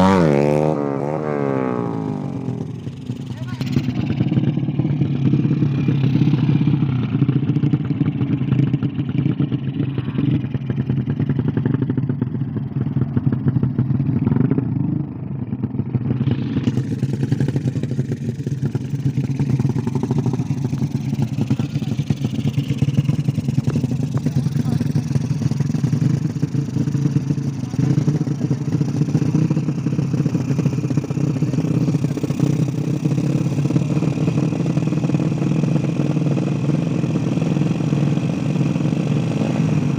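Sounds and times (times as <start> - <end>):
small engine running: 18.6 - 39.9.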